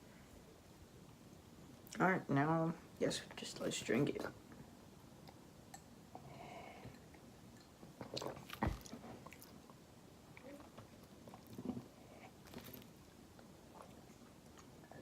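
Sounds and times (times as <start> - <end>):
people sipping and swallowing: 5.3 - 9.7.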